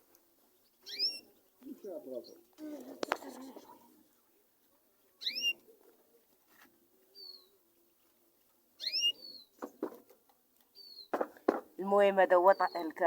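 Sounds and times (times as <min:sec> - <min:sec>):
canaries calling: 0:00.7 - 0:03.8, 0:05.2 - 0:05.7, 0:08.8 - 0:09.6, 0:12.3 - 0:13.0.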